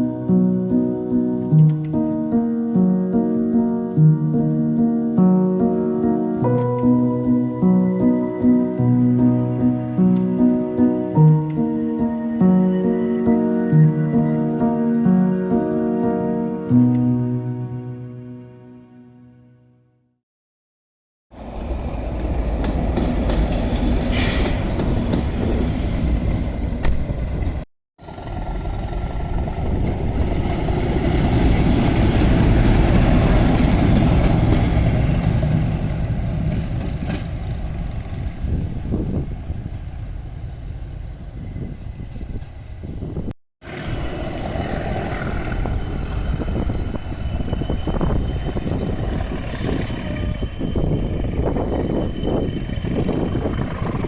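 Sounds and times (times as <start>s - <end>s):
train running on rails: 21.3s - 54.0s.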